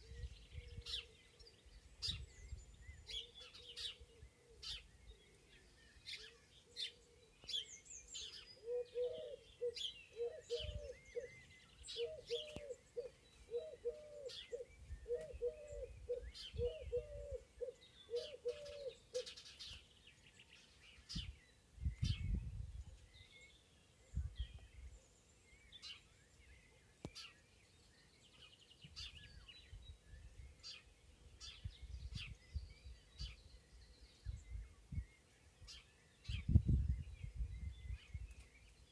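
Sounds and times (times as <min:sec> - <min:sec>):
songbirds chirping and singing: 0:00.0 - 0:38.9
low hooting bird call: 0:08.2 - 0:19.4.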